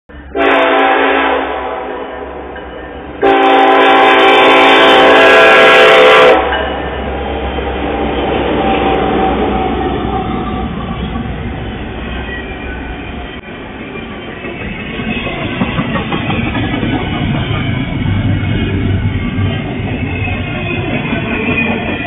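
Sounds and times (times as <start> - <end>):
freight train rumbling past: 0.1 - 22.0
locomotive horn blast: 0.3 - 2.5, 3.1 - 6.6.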